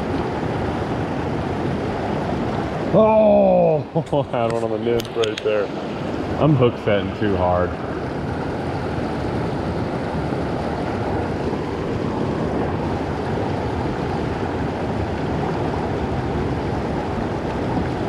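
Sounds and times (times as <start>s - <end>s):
creek water flowing over rocks: 0.0s - 18.0s.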